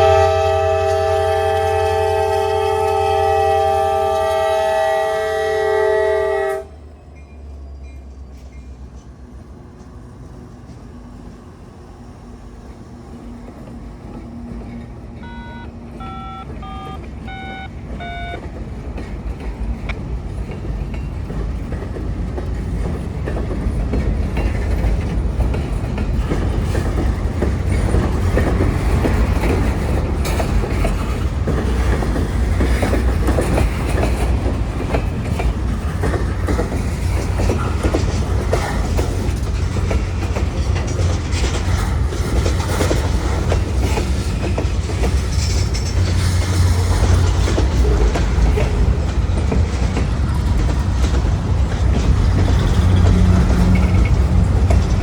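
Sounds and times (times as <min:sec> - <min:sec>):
locomotive horn blast: 0:00.0 - 0:06.8, 0:15.2 - 0:18.4
locomotive engine rumble: 0:00.0 - 0:55.0
wheels rattling on rails: 0:00.0 - 0:55.0
short beeping tones: 0:15.2 - 0:18.5.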